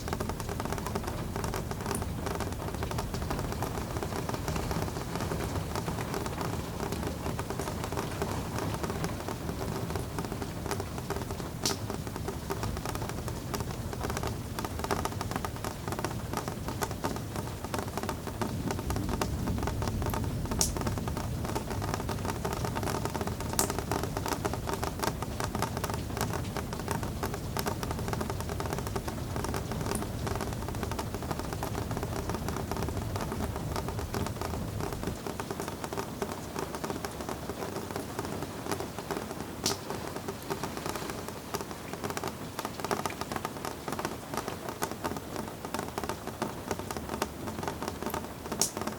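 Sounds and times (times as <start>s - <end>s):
rain pattering: 0.0s - 48.9s.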